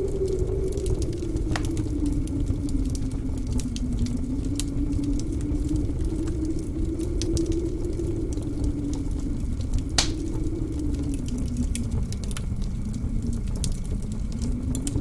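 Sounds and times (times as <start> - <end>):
blizzard wind howling: 0.0 - 15.0
wood fire crackling: 0.0 - 15.0.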